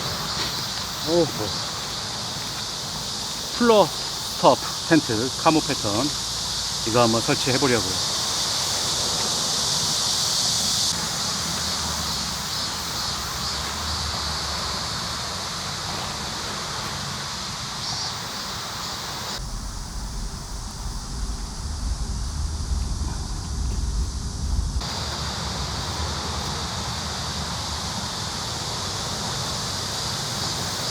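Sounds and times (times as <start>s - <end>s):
insects buzzing: 0.0s - 30.9s
wind rumble on microphone: 19.4s - 28.3s.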